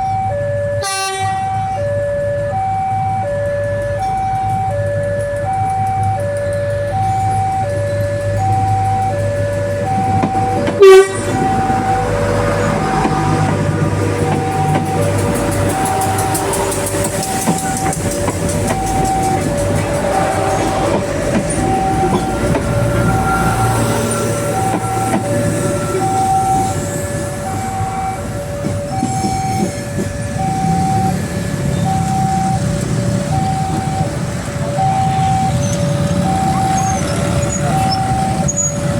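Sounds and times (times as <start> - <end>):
train rumble: 0.0 - 38.9
two-tone crossing warning signal: 0.0 - 38.9
train horn blast: 0.8 - 1.8, 10.6 - 18.1.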